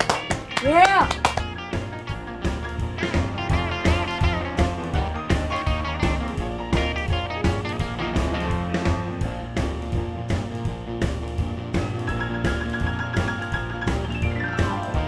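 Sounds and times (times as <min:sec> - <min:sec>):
steady drum beat: 0:00.0 - 0:01.5, 0:06.1 - 0:12.1
upbeat guitar music: 0:00.0 - 0:15.0.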